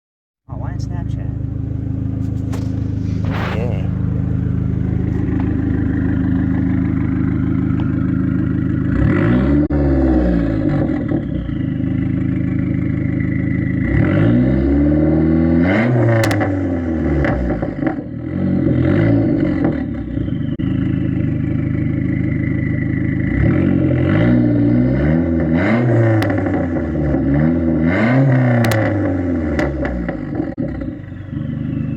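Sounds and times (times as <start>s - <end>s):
car engine idling and revving: 0.5s - 31.9s
backfire pops: 2.2s - 5.6s.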